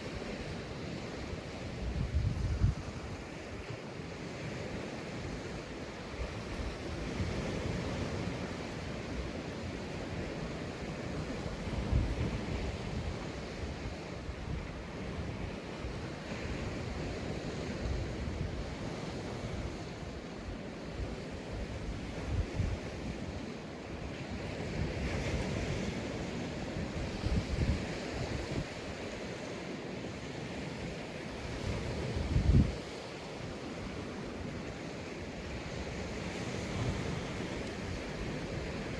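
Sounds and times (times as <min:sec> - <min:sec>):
wind buffeting microphone: 0:00.0 - 0:03.8, 0:11.1 - 0:23.6, 0:24.2 - 0:29.1, 0:31.3 - 0:34.6
sea waves breaking on beach: 0:00.0 - 0:38.9.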